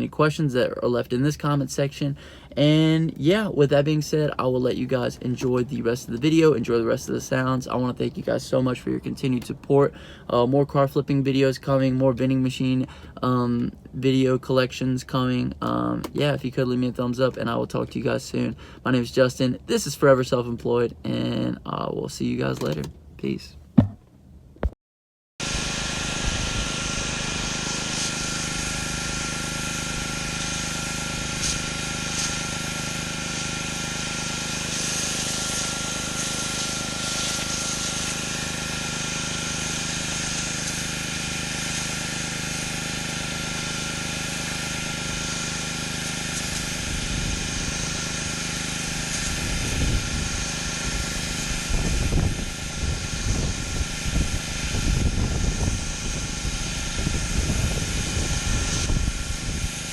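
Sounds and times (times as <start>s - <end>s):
high-pressure water spray hiss: 25.4s - 59.9s
pressure washer engine: 25.4s - 59.9s.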